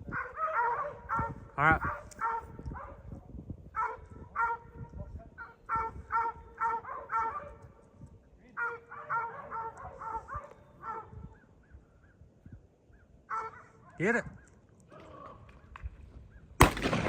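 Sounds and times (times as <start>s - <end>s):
dog barking: 0.1s - 3.2s, 3.8s - 7.8s, 8.6s - 11.4s, 13.3s - 14.0s.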